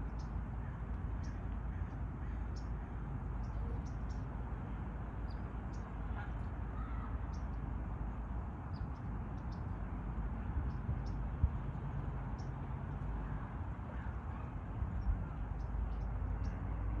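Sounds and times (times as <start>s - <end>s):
small birds chirping: 3.4s - 4.3s.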